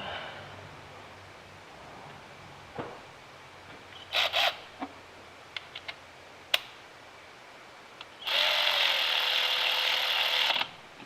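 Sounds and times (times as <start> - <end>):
cordless power driver running: 8.2 - 10.7.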